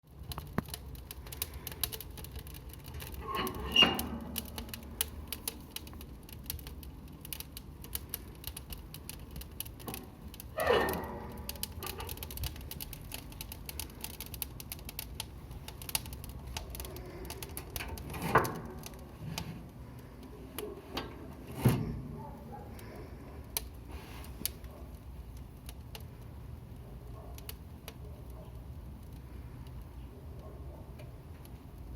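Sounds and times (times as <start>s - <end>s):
loud fire pops: 0.0s - 20.2s
wood fire crackling: 0.0s - 31.9s
low steady rumble: 0.1s - 26.9s.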